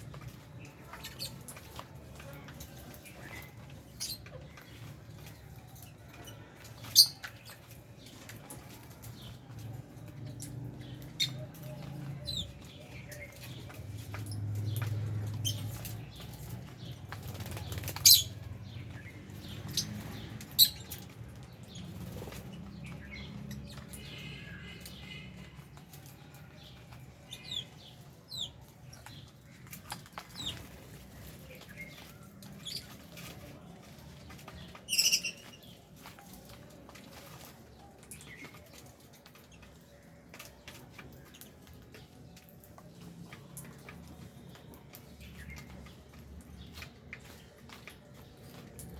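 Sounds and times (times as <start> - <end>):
birds chirping and clicking: 0.0 - 48.9
wings fluttering: 13.6 - 18.4.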